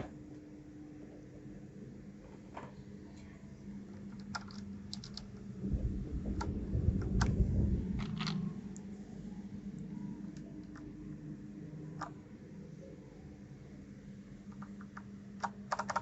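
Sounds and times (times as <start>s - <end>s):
mechanical keyboard keys clicking: 3.9s - 5.4s, 8.0s - 8.5s, 14.5s - 16.0s
low handling rumble: 5.4s - 12.0s.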